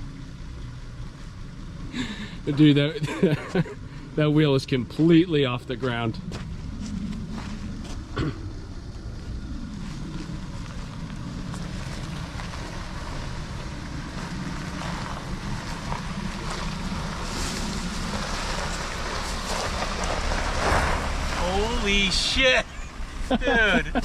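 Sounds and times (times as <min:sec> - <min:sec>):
vehicle engine low rumble: 0:00.0 - 0:24.0.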